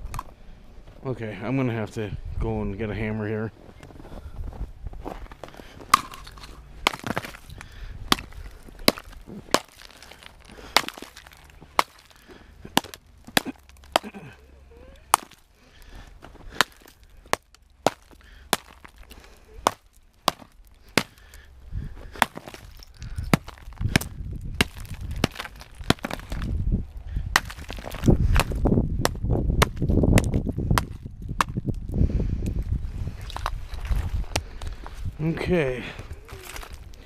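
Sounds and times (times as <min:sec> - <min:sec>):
hammer chopping ice: 0:05.9 - 0:07.5, 0:08.1 - 0:14.4, 0:15.1 - 0:15.4, 0:16.5 - 0:21.4, 0:22.1 - 0:26.5, 0:27.3 - 0:31.6
low rough rumbling: 0:12.4 - 0:35.2.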